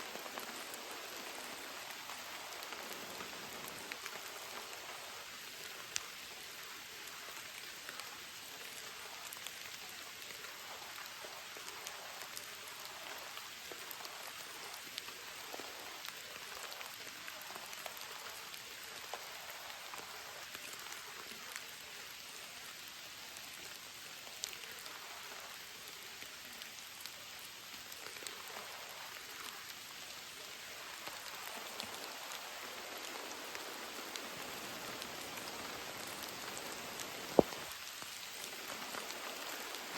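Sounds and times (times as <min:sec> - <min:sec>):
heavy rain: 0:00.0 - 0:39.9
raindrops ticking: 0:00.1 - 0:05.1, 0:26.6 - 0:39.9.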